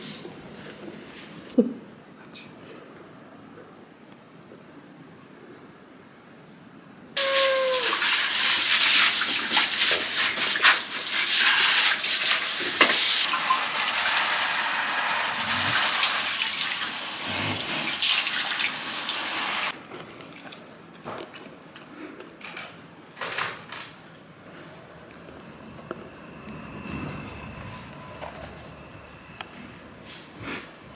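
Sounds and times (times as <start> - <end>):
hair dryer blowing: 7.2 - 19.7.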